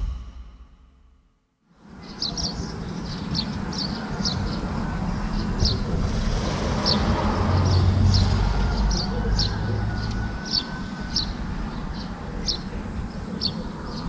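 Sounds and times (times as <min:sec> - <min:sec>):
steady low rumble: 0:00.0 - 0:01.2
small bird chirping: 0:02.0 - 0:04.7.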